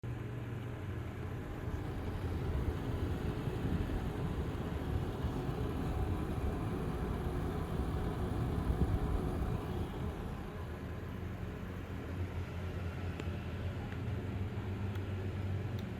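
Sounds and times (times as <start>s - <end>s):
computer fans rattling: 1.4s - 11.3s.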